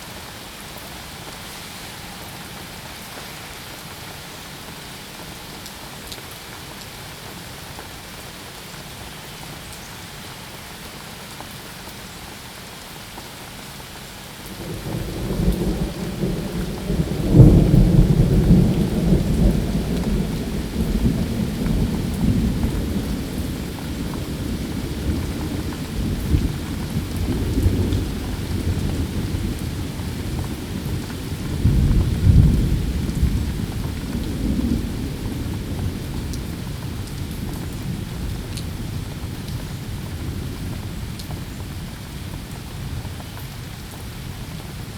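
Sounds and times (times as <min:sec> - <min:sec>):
steady rain falling: 0:00.0 - 0:44.9
thunder rolling: 0:14.6 - 0:31.0.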